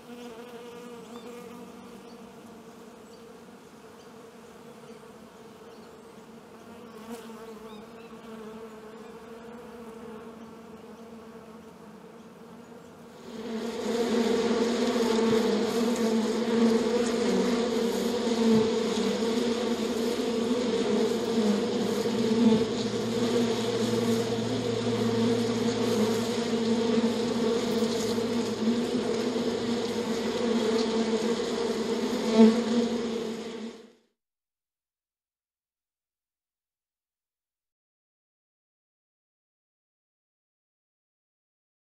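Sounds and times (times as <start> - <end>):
honeybees buzzing: 0.0 - 34.0.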